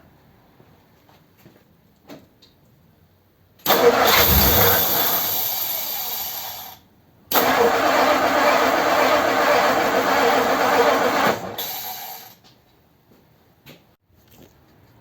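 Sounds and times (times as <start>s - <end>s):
starter motor cranking engine: 3.7s - 6.2s, 7.3s - 11.6s.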